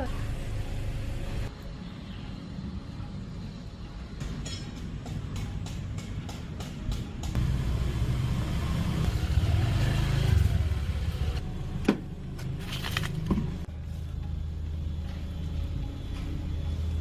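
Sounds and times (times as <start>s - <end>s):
vehicle engine rumbling: 0.0s - 1.5s, 7.3s - 17.0s.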